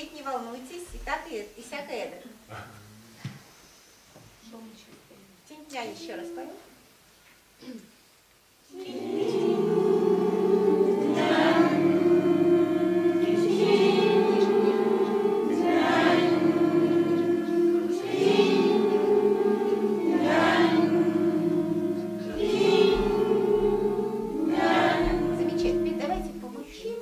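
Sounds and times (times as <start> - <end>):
group of voices singing held notes: 8.6 - 27.0.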